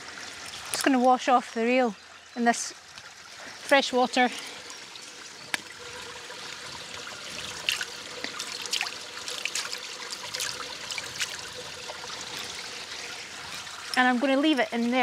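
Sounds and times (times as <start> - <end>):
water trickling: 0.0 - 15.0
small splashes and clicks: 0.4 - 1.4, 7.6 - 11.4.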